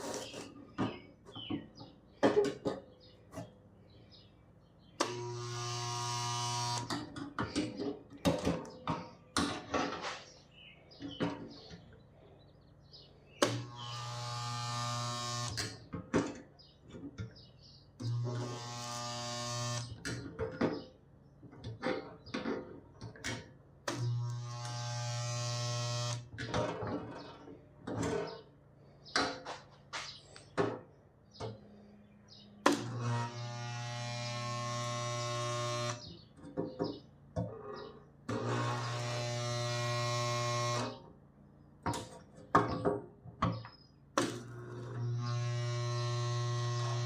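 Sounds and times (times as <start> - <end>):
electric welder buzzing: 5.0 - 7.1, 13.4 - 15.8, 18.0 - 20.0, 23.9 - 26.4, 32.6 - 36.0, 38.3 - 41.0, 44.2 - 47.0.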